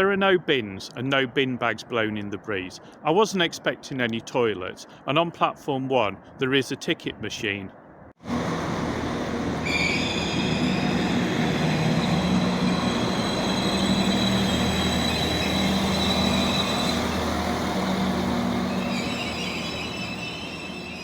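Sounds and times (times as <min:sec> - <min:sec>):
train running hum: 0:08.2 - 0:21.0
train wheel squeal: 0:08.7 - 0:21.0.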